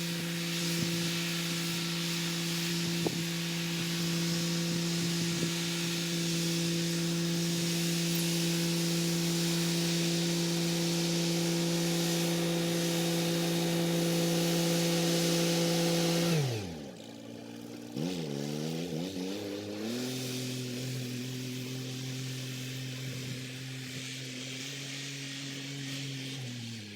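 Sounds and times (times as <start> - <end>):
rotary tiller hissing rattle: 0.0 - 17.9.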